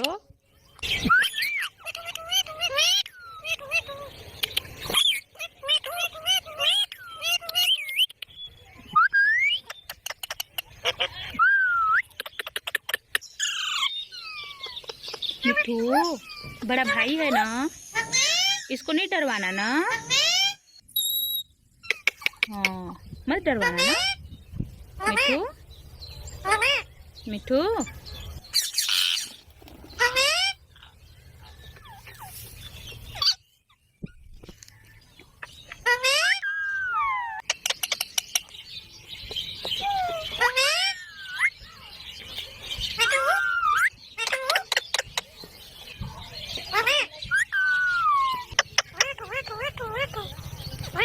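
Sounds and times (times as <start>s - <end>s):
parrot harsh chattering: 28.8s - 30.6s.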